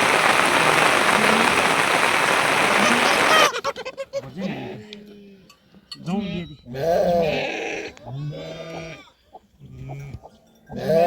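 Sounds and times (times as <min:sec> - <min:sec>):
heavy rain pouring: 0:00.0 - 0:03.6
rising-and-falling calls: 0:00.0 - 0:03.6.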